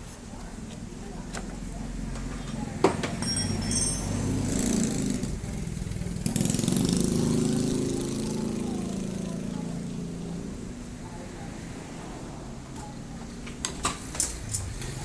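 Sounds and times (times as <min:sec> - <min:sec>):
small engine pulsing: 0:14.0 - 0:15.0.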